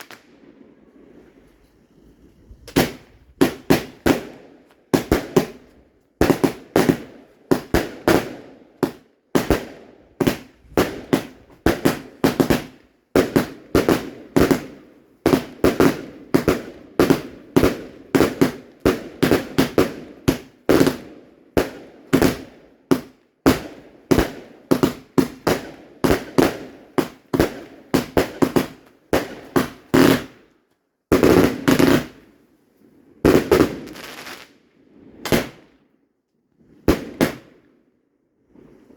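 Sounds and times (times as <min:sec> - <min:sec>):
fireworks banging: 0:02.6 - 0:21.0, 0:21.6 - 0:30.3, 0:31.1 - 0:32.2.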